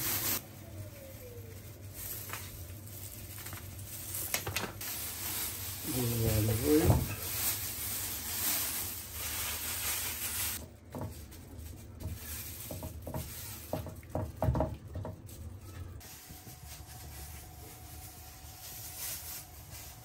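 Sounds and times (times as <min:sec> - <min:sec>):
sizzling hiss: 0:00.0 - 0:00.4.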